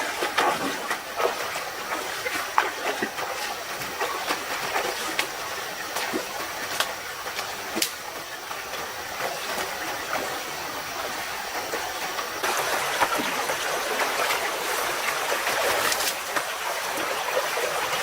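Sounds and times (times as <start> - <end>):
stream running: 0.0 - 18.0.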